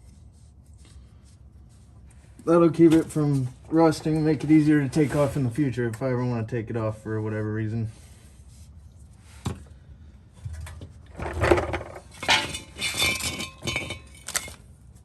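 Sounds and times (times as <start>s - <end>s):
metal tools clinking: 12.2s - 14.6s.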